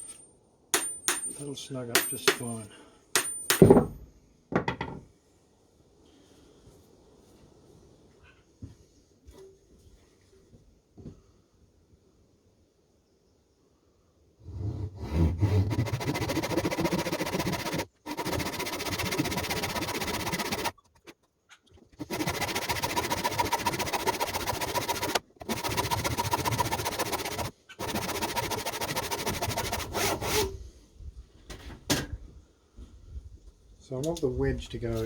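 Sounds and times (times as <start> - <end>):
wood being rasped: 15.0 - 30.5.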